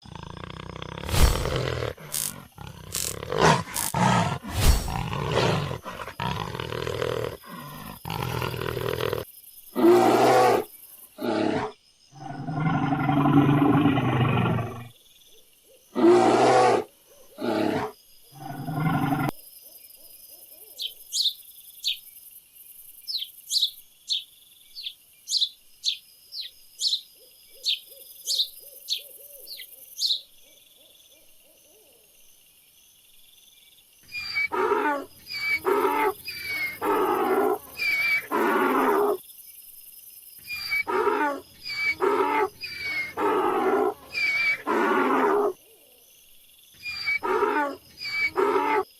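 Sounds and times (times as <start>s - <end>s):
loud animal calls: 0.4s - 9.2s, 34.1s - 39.2s, 40.4s - 45.6s, 46.8s - 48.9s
high bird chirps: 23.1s - 30.3s.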